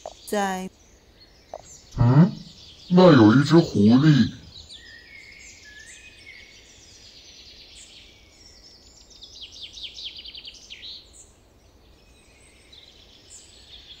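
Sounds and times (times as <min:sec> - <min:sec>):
birds chirping: 0:01.6 - 0:04.9
faint low hum: 0:02.0 - 0:04.6.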